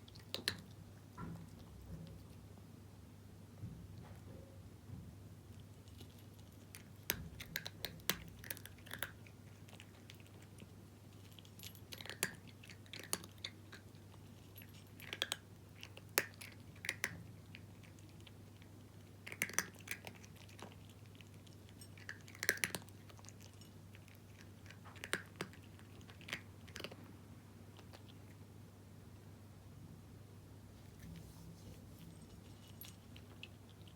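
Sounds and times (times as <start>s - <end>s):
cat crunching dry kibble: 0.0s - 0.8s, 5.5s - 27.1s, 31.0s - 33.9s.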